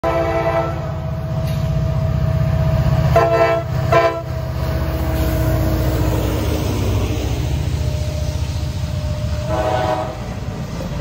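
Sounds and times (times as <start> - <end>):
locomotive air horn: 0.0 - 1.0, 3.1 - 4.4, 9.4 - 10.5
locomotive engine rumble: 0.0 - 11.0.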